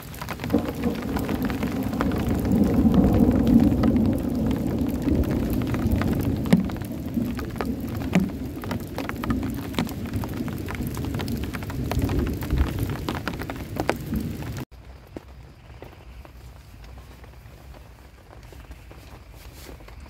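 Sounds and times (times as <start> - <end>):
low rumble of thunder: 0.0 - 14.6
heavy rain on a tent: 0.0 - 20.0.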